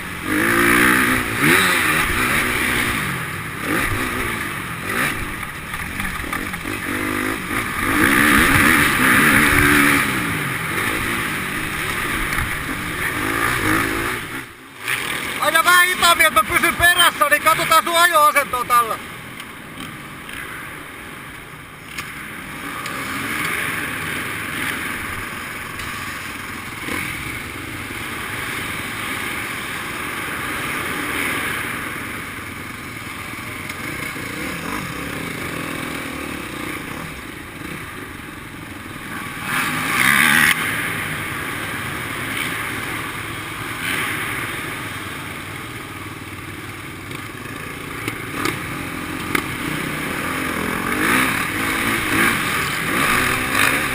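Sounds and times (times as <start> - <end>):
motocross bike engines revving: 0.0 - 53.9.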